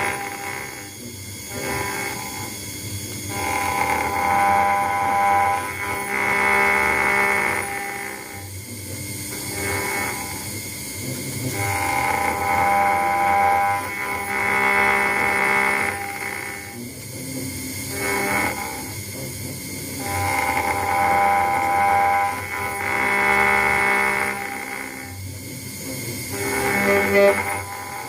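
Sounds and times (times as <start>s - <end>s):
router spindle high-pitched whine: 0.0s - 28.0s.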